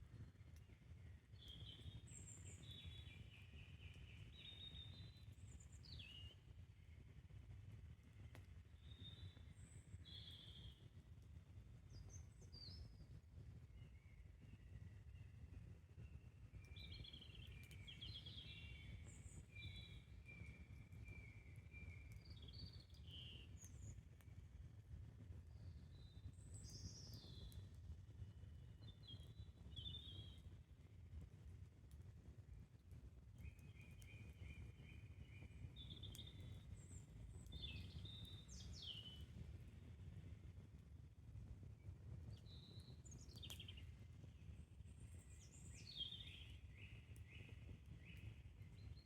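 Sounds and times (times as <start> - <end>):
campfire crackles: 0.0 - 13.6, 15.4 - 49.0.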